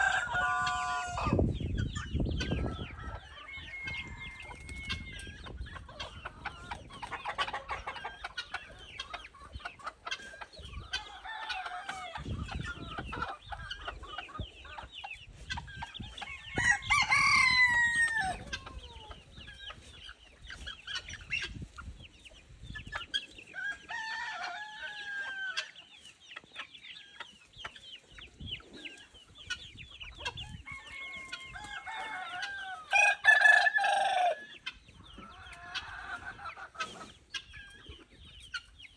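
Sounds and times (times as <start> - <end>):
rooster crowing: 0.0 - 1.4, 2.8 - 5.1, 16.5 - 18.4, 30.6 - 34.4
chickens clucking: 0.0 - 38.9.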